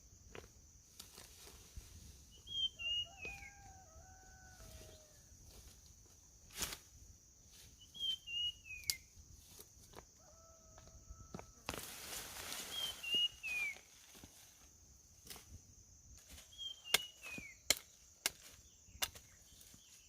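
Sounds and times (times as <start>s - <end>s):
high insect drone: 0.0s - 20.0s
birds whistling: 2.3s - 3.7s, 7.8s - 9.1s, 12.7s - 13.9s, 16.5s - 17.7s.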